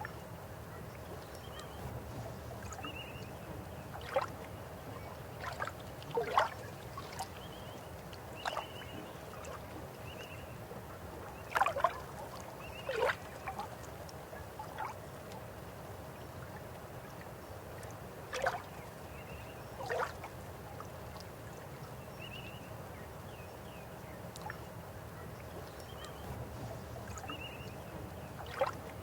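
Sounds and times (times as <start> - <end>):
river water flowing: 1.6 - 10.1, 24.3 - 29.0
water gurgles and splashes: 5.4 - 7.4.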